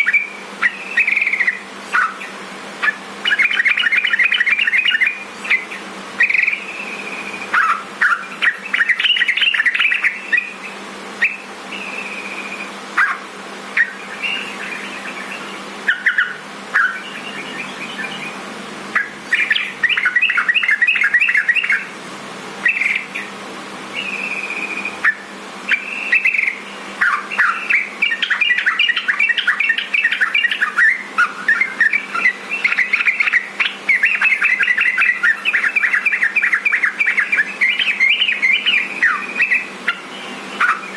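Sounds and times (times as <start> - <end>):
bird chirping and whistling: 0.0 - 21.9, 22.6 - 40.9.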